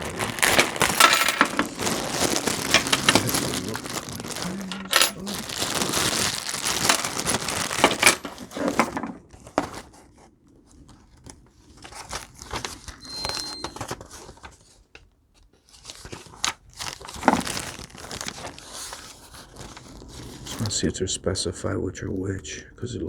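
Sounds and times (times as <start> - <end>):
plastic packaging crinkling: 0.0 - 9.9, 10.7 - 14.8, 15.6 - 20.8
small parts clicking and knocking: 0.4 - 9.0.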